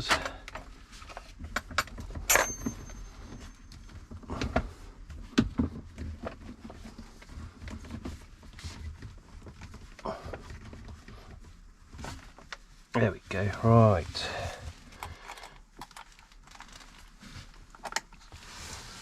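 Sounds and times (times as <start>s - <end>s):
metal clinks and knocks: 1.5s - 4.1s.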